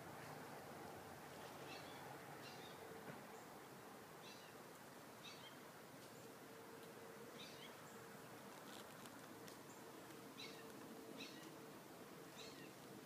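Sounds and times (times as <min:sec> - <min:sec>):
faint woodland ambience: 0:00.0 - 0:13.0
bird chirping: 0:01.6 - 0:02.8, 0:05.2 - 0:05.6, 0:07.3 - 0:08.0, 0:09.7 - 0:11.6, 0:12.3 - 0:12.8.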